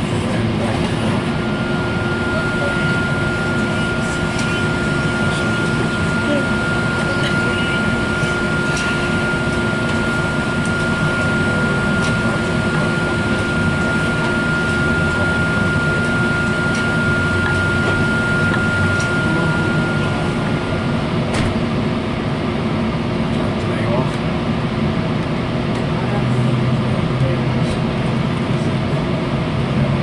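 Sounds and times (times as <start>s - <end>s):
train cabin rumble and hiss: 0.0s - 21.6s
thin steady whine: 0.0s - 30.0s.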